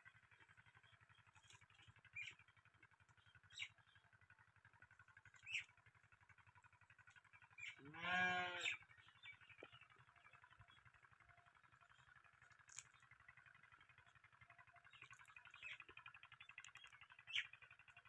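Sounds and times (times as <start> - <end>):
birds chirping: 0.0 - 18.0
diesel engine chugging: 0.0 - 18.0
farm animal bleating: 7.6 - 9.0.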